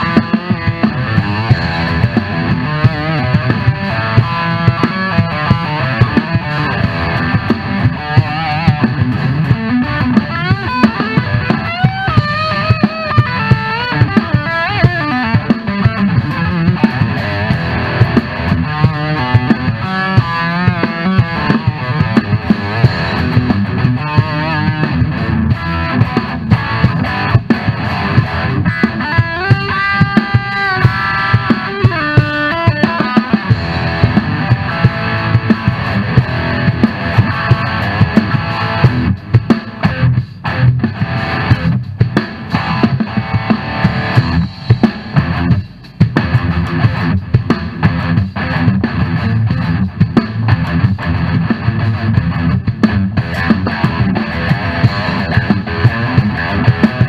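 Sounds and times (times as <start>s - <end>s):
electric guitar solo: 0.0s - 39.2s, 39.8s - 41.8s, 42.4s - 45.6s, 47.8s - 57.0s
drum kit: 0.0s - 57.0s.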